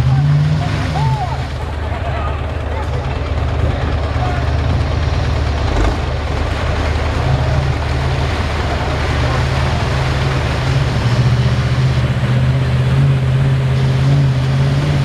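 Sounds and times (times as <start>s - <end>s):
truck engine running hard: 0.0s - 15.0s.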